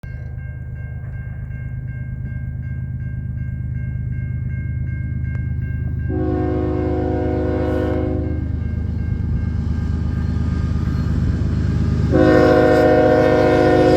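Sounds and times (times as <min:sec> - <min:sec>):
diesel locomotive engine rumble: 0:00.0 - 0:13.9
locomotive bell ringing: 0:00.0 - 0:13.9
locomotive air horn blast: 0:06.1 - 0:08.6, 0:12.1 - 0:13.9.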